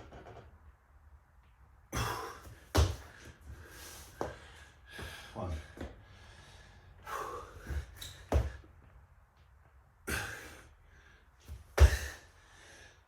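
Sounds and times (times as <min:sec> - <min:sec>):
person breathing hard and gasping: 0:02.0 - 0:08.7, 0:10.1 - 0:13.0
hands and feet thudding on floor: 0:02.4 - 0:03.3, 0:11.4 - 0:12.2.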